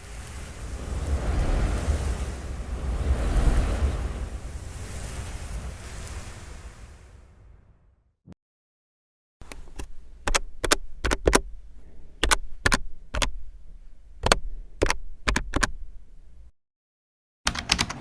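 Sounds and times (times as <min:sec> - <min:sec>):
rushing noise: 0:00.0 - 0:07.7
sharp clicks: 0:09.4 - 0:16.4.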